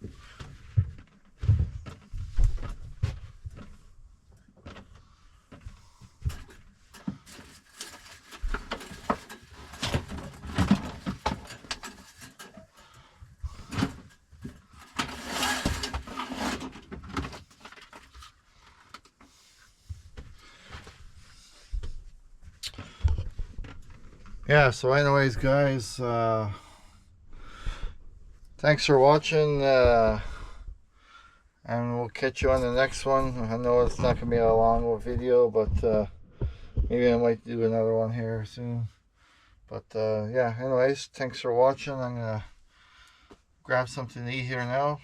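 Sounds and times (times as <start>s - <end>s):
objects being handled: 5.5s - 19.3s.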